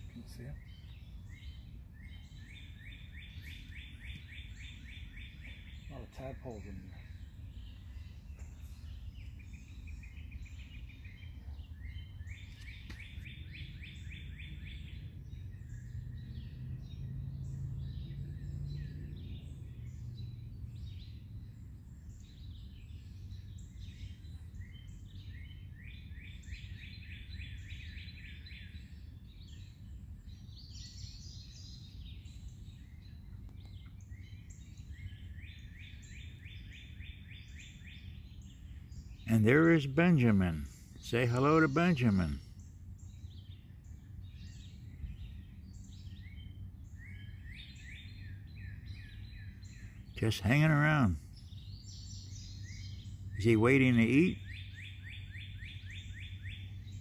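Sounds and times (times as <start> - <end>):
high bird chirps: 0.0 - 21.2.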